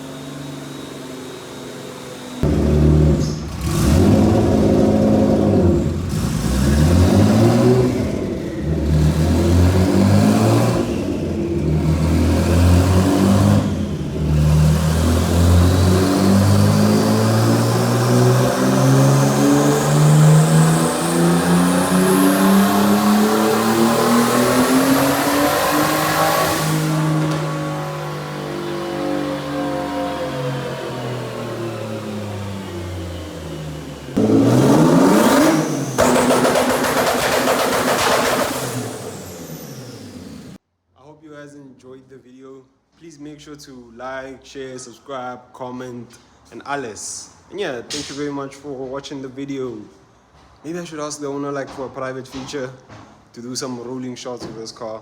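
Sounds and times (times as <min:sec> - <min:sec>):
car engine at full throttle: 0:00.0 - 0:40.6
high turbo whine: 0:00.0 - 0:40.6.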